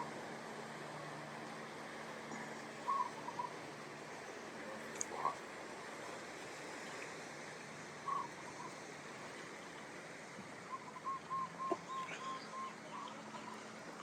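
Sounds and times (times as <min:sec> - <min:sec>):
ocean surf: 0:00.0 - 0:14.0
bird calling: 0:02.3 - 0:03.7, 0:08.0 - 0:08.9, 0:10.7 - 0:13.8.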